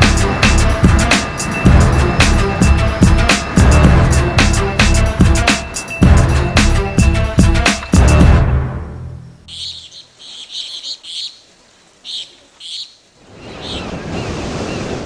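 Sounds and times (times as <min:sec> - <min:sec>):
bird chirping: 0:00.0 - 0:08.3, 0:08.9 - 0:14.3
rush of noise: 0:00.0 - 0:09.4
music: 0:00.0 - 0:09.5.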